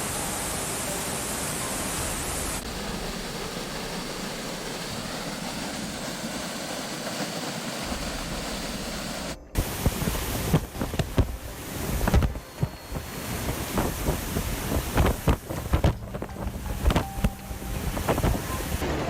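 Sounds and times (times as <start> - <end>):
steady rushing noise: 0.0 - 19.0
wind buffeting microphone thumps: 4.9 - 18.8.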